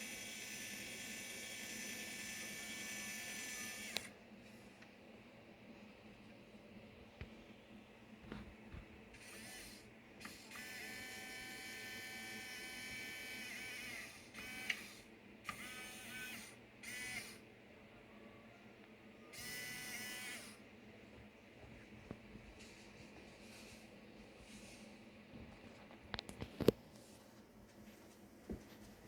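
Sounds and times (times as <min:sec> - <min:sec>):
small electric motor whining: 0:00.0 - 0:04.1, 0:09.2 - 0:17.4, 0:19.3 - 0:20.6.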